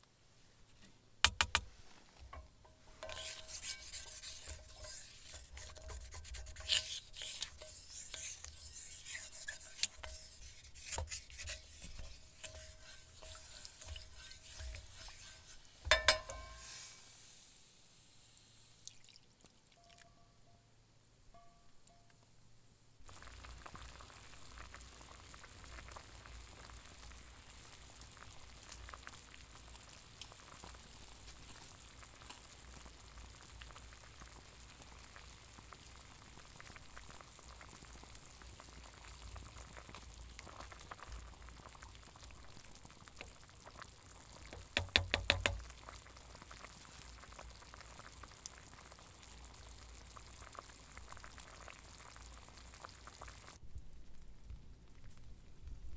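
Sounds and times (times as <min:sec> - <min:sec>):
sharp clicks: 0:01.2 - 0:01.7
campfire cooking crackling and sizzling: 0:01.3 - 0:19.3, 0:23.0 - 0:55.9.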